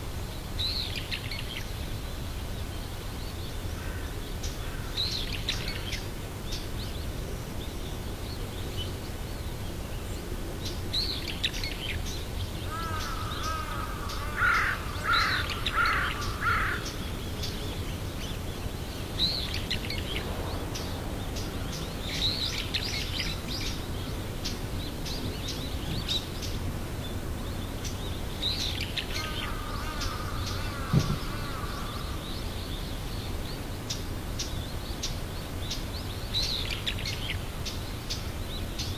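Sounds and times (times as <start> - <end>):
birds chirping: 2.6 - 38.9
rising and falling bird calls: 12.6 - 17.6, 28.5 - 32.9.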